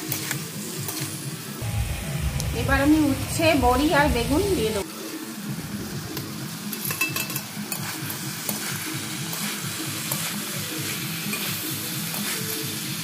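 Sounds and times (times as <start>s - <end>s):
vegetables sizzling in a pan: 5.5s - 13.0s.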